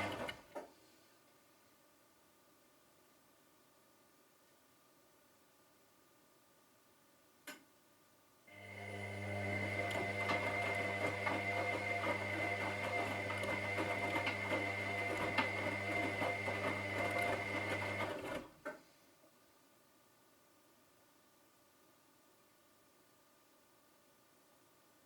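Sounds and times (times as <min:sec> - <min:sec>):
washing machine motor humming: 0:00.0 - 0:00.3, 0:08.6 - 0:18.4.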